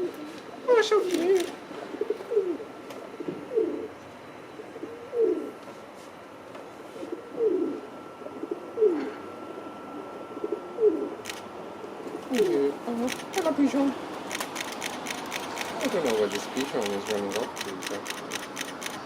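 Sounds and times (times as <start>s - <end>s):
pigeon cooing: 0.0s - 5.6s, 7.0s - 11.2s.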